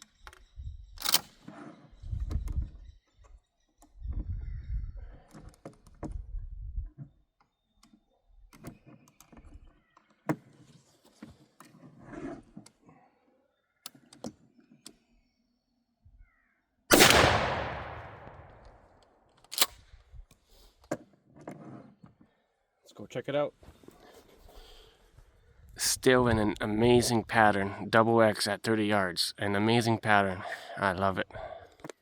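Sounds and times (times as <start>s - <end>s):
gun handling clicks: 1.0s - 1.4s, 16.9s - 18.8s, 19.4s - 19.8s
shotgun shot echoing: 16.9s - 18.8s.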